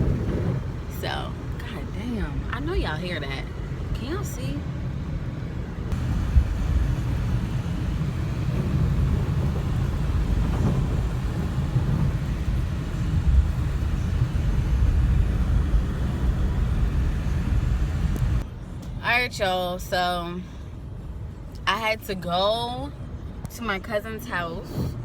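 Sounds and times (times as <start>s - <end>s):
car driving on snowy road: 0.0s - 18.8s.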